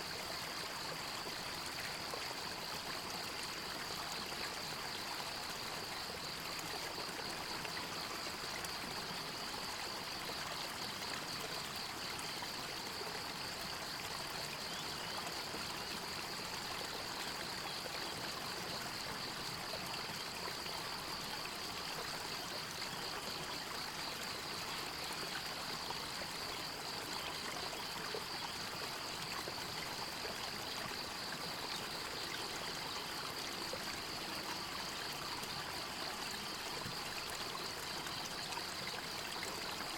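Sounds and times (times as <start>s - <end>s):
stream trickling and gurgling: 0.0s - 39.9s.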